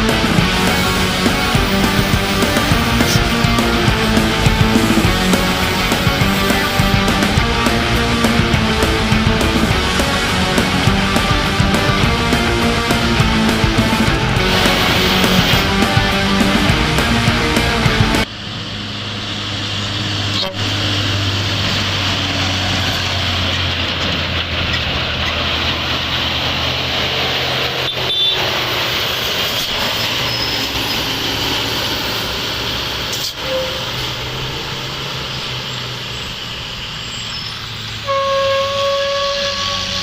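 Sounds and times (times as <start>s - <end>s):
truck brakes and engine rushing: 0.0s - 40.0s
vehicle horn: 0.1s - 17.8s, 20.4s - 21.0s, 27.8s - 28.6s, 33.2s - 34.2s, 38.0s - 40.0s.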